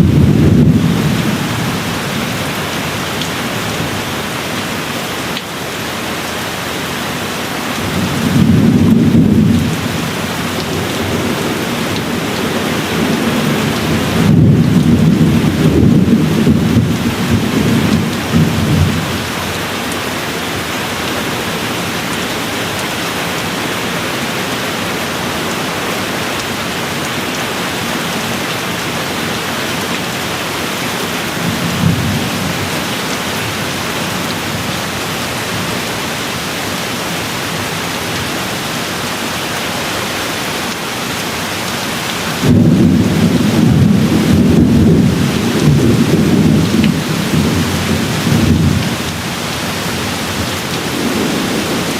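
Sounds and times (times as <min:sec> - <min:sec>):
thunder rumbling: 0:00.0 - 0:04.3, 0:07.8 - 0:22.1, 0:31.2 - 0:34.8, 0:42.4 - 0:51.9
steady rain falling: 0:00.0 - 0:51.9.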